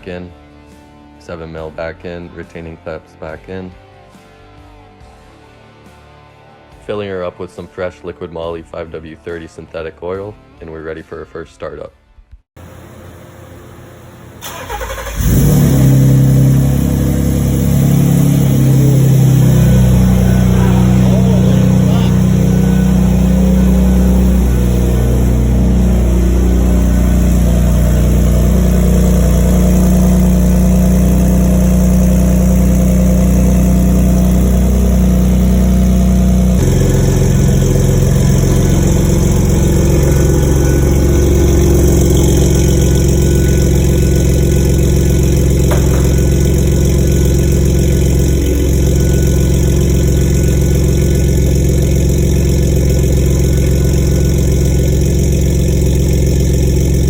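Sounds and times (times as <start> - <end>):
truck engine idling: 12.6 - 57.0.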